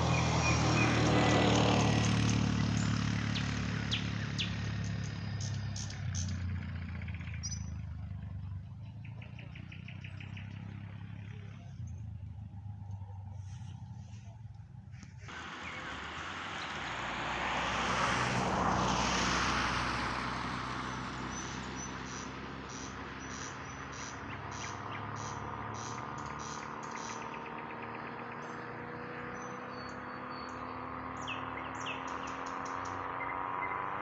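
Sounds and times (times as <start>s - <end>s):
vehicle passing: 0.0s - 34.0s
low engine drone: 10.3s - 27.2s.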